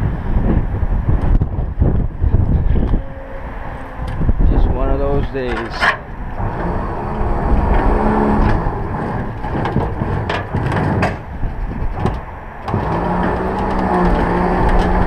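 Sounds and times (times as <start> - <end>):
engine-like hum: 0.0 - 15.0
wind buffeting microphone: 0.0 - 15.0
sharp knocks: 8.4 - 14.4.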